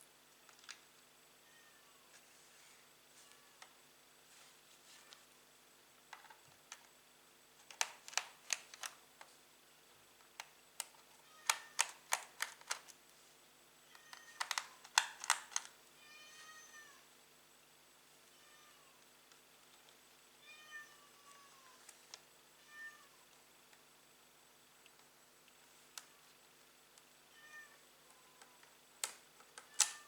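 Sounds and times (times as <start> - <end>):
sharp clicks and taps: 7.6 - 9.0, 14.4 - 15.7
cat meowing: 16.0 - 17.0, 18.3 - 19.0, 20.4 - 21.8, 22.6 - 23.2, 27.3 - 28.5.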